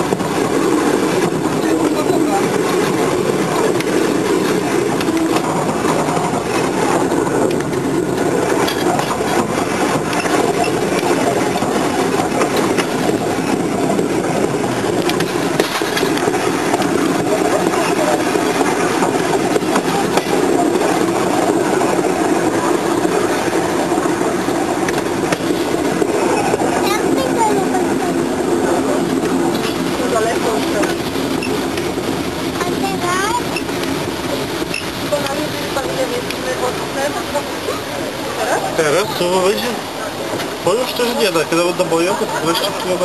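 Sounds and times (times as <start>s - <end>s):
train running on track: 0.0s - 43.0s.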